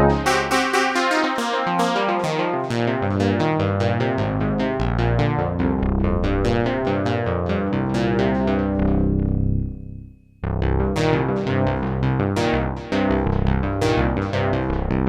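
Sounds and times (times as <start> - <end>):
synthesizer plucked notes: 0.0 - 10.0
synthesizer bass notes: 0.0 - 15.0.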